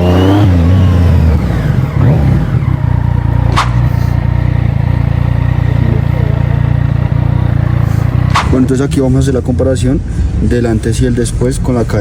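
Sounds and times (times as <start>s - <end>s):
motorcycle engine revving and idling: 0.0s - 10.4s
brief sharp sound: 3.5s - 4.2s, 8.3s - 8.8s.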